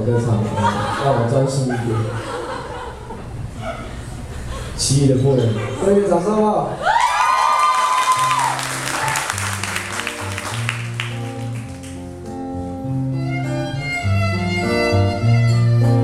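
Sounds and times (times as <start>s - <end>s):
audience applause and cheering: 6.8s - 12.1s
live band playing: 8.7s - 16.0s.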